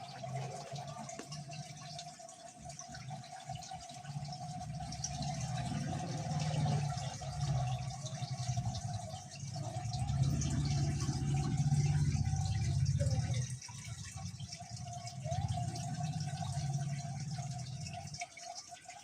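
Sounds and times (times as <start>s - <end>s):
water trickling and dripping: 0.0s - 19.0s
steady hum: 4.2s - 18.1s.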